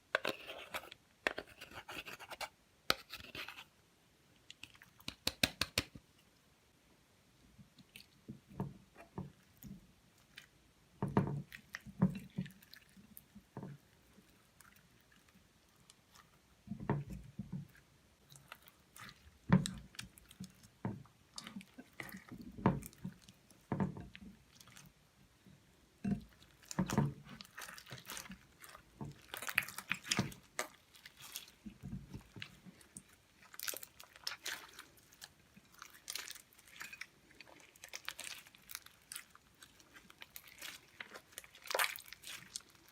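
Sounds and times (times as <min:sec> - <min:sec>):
slime squelching: 0:11.4 - 0:25.1, 0:26.0 - 0:42.9.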